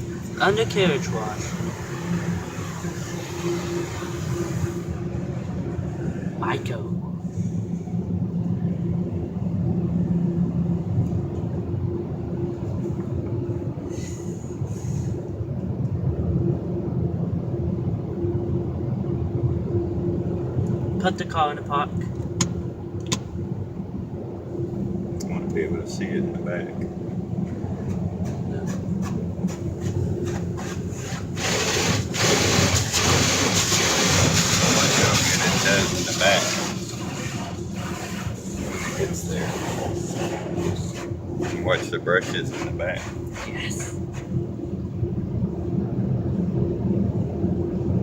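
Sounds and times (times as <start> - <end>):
car wash machinery rumble: 0.0 - 48.0
water spray hitting car: 0.4 - 4.9, 28.2 - 43.9.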